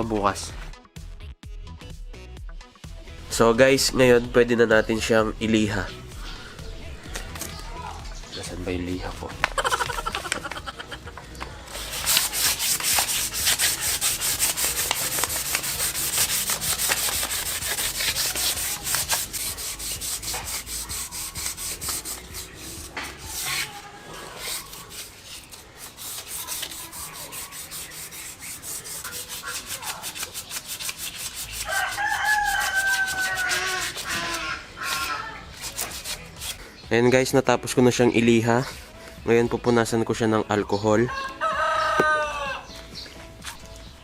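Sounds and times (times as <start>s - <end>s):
sandpaper rubbing on metal: 11.6s - 36.7s
rooster crowing: 31.6s - 35.2s, 41.1s - 42.7s.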